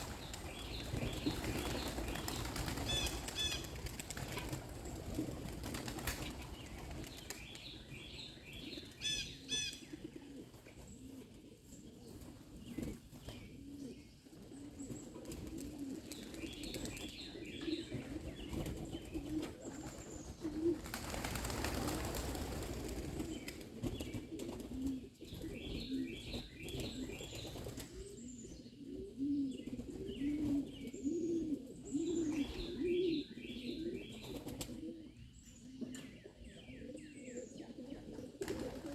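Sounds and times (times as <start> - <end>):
wings flapping: 0.0 - 7.5, 18.5 - 25.5, 38.4 - 38.9
pigeons cooing: 0.0 - 38.9.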